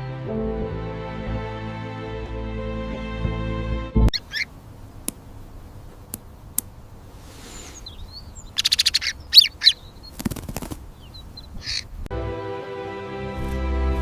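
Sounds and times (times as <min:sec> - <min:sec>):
soft music with held notes: 0:00.0 - 0:04.1, 0:12.1 - 0:14.0
bird chirps: 0:04.1 - 0:04.5, 0:07.4 - 0:12.0
wing flutter: 0:10.0 - 0:11.0.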